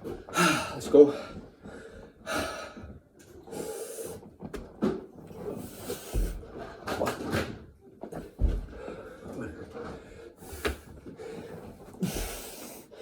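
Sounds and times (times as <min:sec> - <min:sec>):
man breathing hard: 0:00.3 - 0:04.3, 0:08.6 - 0:13.0.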